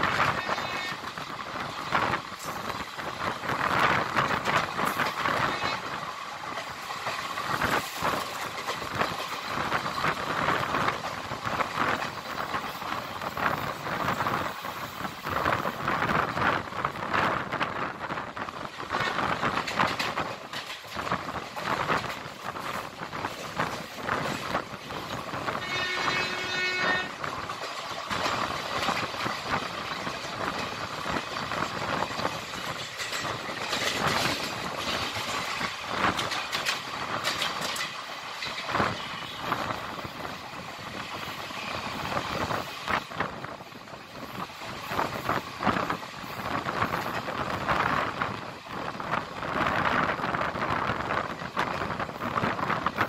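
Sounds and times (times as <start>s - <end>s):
train rumbling on the track: 0.0s - 53.0s
wheels clattering over rail joints: 1.7s - 17.0s, 18.6s - 48.8s
train horn note: 25.6s - 27.3s.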